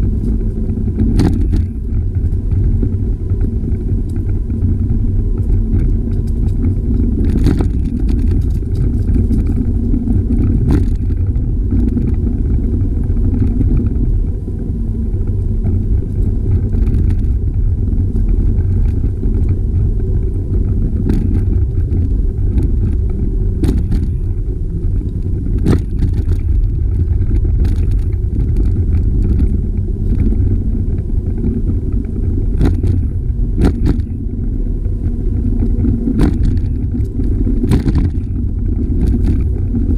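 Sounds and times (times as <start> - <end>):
wind buffeting microphone: 0.0 - 39.9
bike clicks and knocks: 0.1 - 14.0, 15.2 - 39.9.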